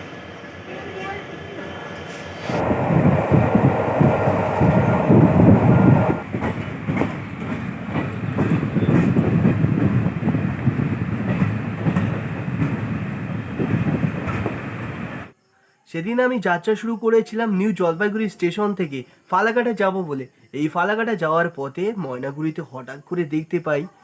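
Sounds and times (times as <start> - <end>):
train carriages rumbling: 0.6 - 15.3
wheels clacking over rail joints: 2.6 - 14.6.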